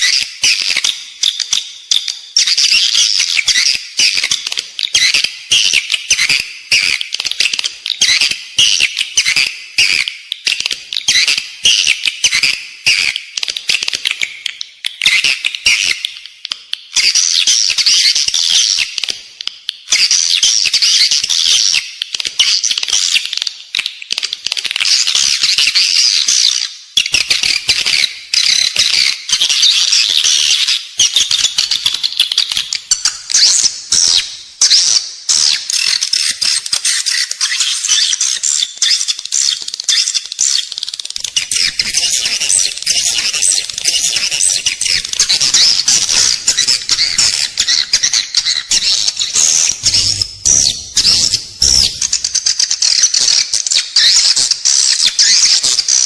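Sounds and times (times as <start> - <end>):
swiftlets twittering and chirping: 27.1 - 56.0.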